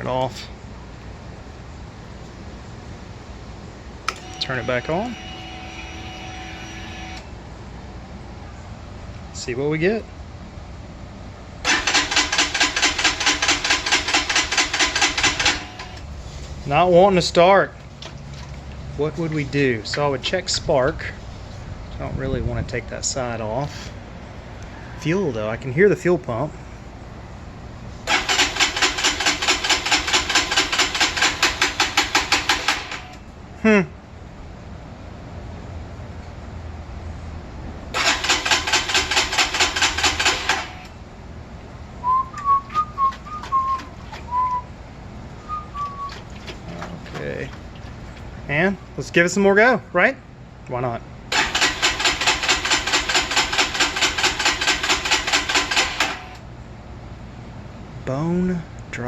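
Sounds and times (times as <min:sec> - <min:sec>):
electric starter cranking engine: 0:11.6 - 0:16.2, 0:28.0 - 0:33.2, 0:37.9 - 0:41.0, 0:51.3 - 0:56.5.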